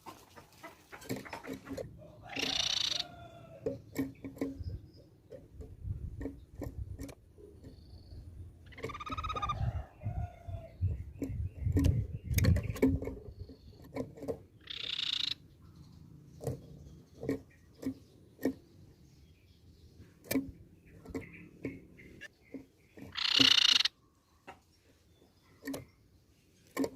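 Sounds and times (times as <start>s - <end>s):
bird harsh rasping call: 2.3s - 3.2s, 14.6s - 15.4s, 23.1s - 24.0s.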